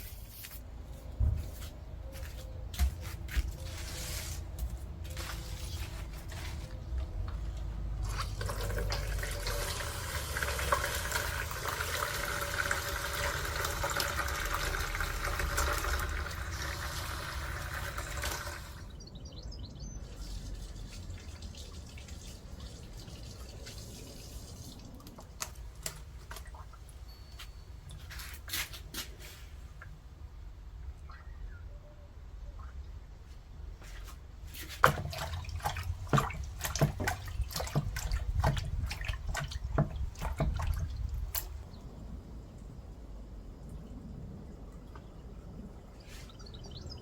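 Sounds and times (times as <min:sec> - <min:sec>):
water pouring: 0:07.5 - 0:18.9, 0:20.1 - 0:26.9, 0:34.7 - 0:41.6.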